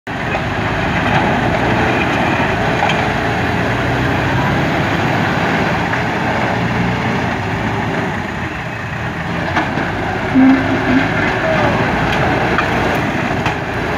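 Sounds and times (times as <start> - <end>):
diesel engine running: 0.1 - 13.9.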